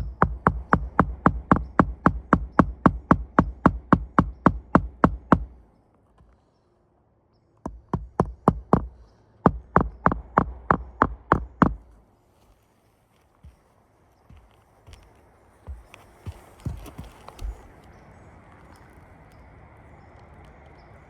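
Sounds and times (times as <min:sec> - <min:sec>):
hammer striking nails: 0:00.0 - 0:05.6, 0:07.7 - 0:11.9.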